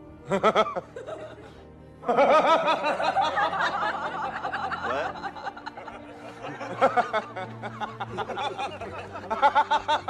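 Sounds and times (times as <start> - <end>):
man laughing: 2.1 - 10.0.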